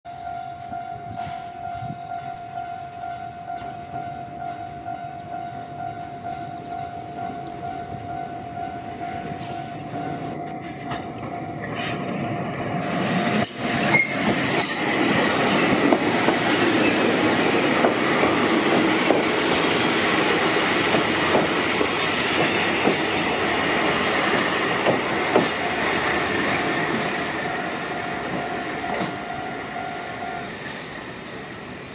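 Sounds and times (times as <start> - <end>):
level crossing warning alarm: 0.1 - 11.6, 26.9 - 30.6
electric train approaching: 0.1 - 31.9
wheel squeal: 13.4 - 15.8.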